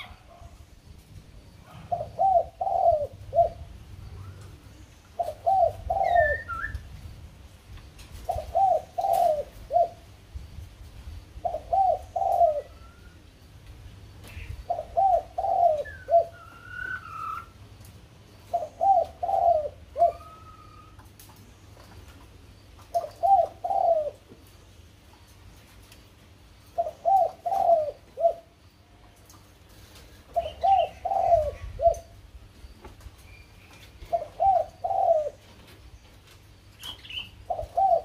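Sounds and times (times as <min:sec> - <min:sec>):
bird calling low falling notes: 0:15.0 - 0:17.6.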